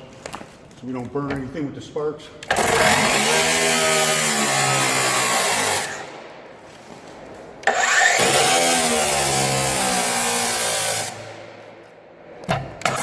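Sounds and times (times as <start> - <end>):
angle grinder cutting steel: 2.5 - 6.1, 7.6 - 11.3.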